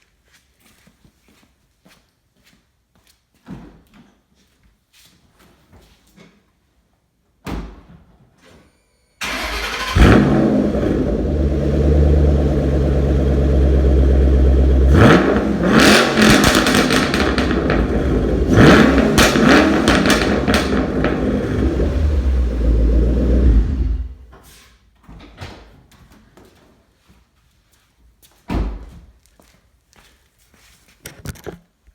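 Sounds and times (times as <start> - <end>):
engine revving: 9.2 - 24.2
car engine starting and idling: 9.2 - 24.3
exhaust crackle and pops: 9.9 - 23.6.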